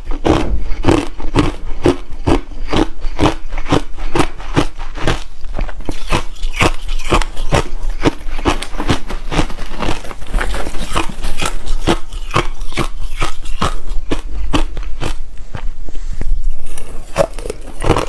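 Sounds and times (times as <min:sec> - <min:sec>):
ice being chewed: 0:00.0 - 0:18.0.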